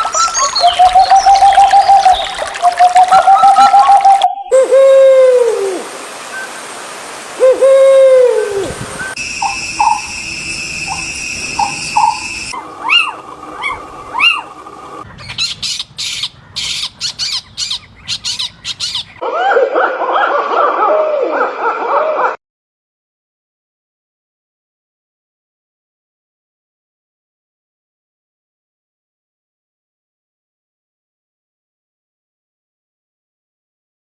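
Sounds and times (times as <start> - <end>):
chorus of overlapping bird calls: 0.0 - 4.6, 9.0 - 19.6
loud drooping bird calls: 0.0 - 6.7, 7.4 - 19.7.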